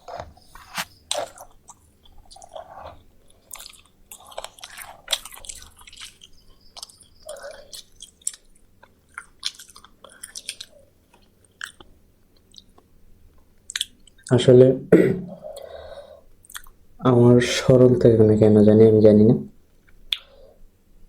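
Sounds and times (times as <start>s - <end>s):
chewing crunchy fried food: 0.0s - 14.3s.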